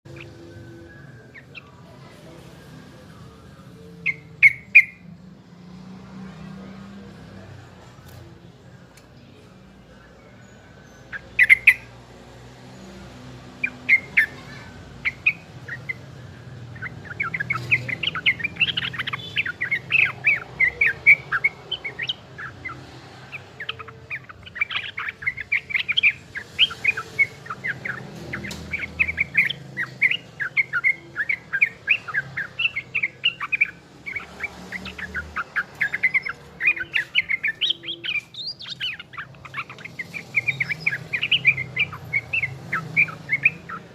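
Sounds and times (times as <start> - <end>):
young bulbul chirping: 4.0 - 5.0, 10.9 - 12.0, 13.5 - 43.9.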